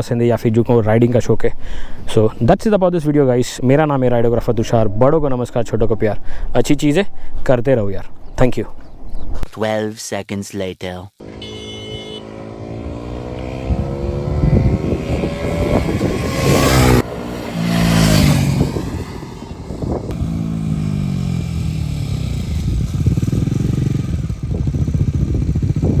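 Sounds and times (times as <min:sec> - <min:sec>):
motorcycle engine accelerating: 0:11.2 - 0:26.0.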